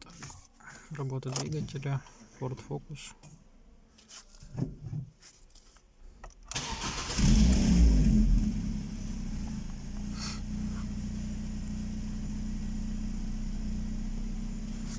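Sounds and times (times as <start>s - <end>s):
car engine starting and idling: 6.5s - 14.9s.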